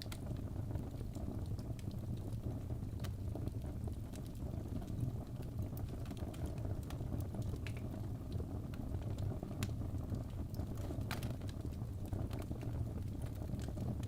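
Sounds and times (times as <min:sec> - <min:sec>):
fire crackling and popping: 0:00.0 - 0:14.0
low rumble of flame: 0:00.0 - 0:14.0.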